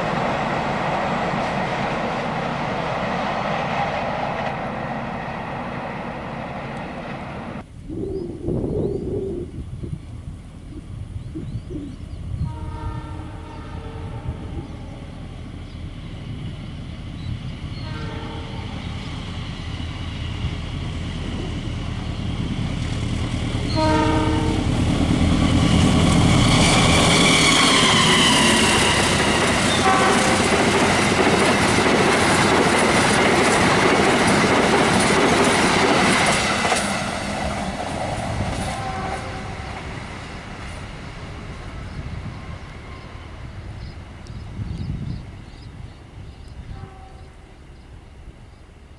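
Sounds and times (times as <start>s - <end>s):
train horn blasts: 12.3s - 15.5s, 17.5s - 19.5s, 23.5s - 31.3s, 38.3s - 40.3s, 46.3s - 47.8s
train wheels clacking on rails: 12.5s - 46.9s.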